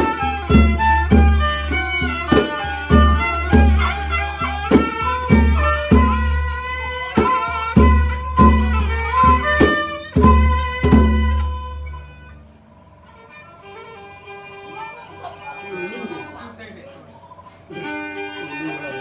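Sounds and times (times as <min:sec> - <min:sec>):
low drum beat: 0:00.0 - 0:12.1
fiddle melody: 0:00.0 - 0:16.9, 0:17.7 - 0:19.0.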